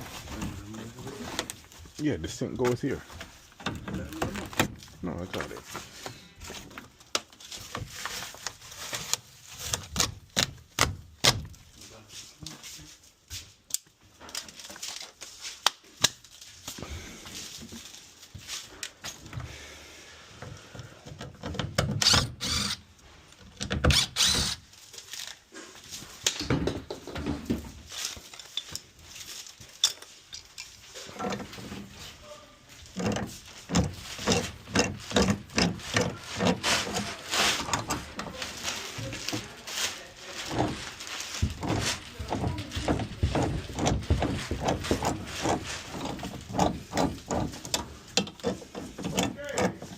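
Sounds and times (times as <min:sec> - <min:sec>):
tools knocking clicking and scraping: 0:21.0 - 0:22.8, 0:26.2 - 0:29.0, 0:29.7 - 0:32.0, 0:32.8 - 0:38.4, 0:40.5 - 0:49.9.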